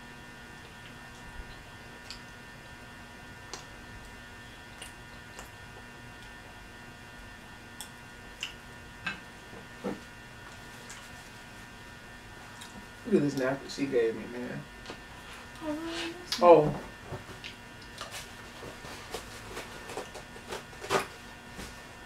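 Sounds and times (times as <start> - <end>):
electrical hum: 0.0 - 22.0
person chewing food: 0.6 - 2.4, 3.4 - 6.7, 10.4 - 11.2, 12.5 - 13.0.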